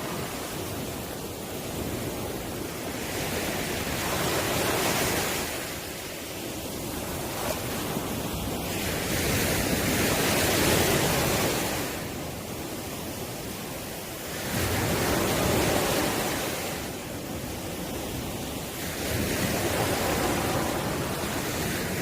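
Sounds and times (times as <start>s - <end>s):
ocean waves breaking on shore: 0.0s - 22.0s
wind on microphone: 0.0s - 22.0s.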